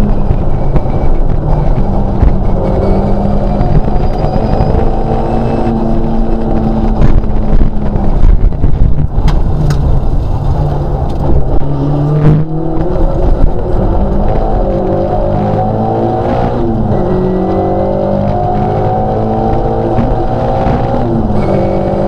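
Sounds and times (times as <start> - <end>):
rally car engine running hard: 0.0 - 22.0
sharp clicks from car: 6.4 - 11.7.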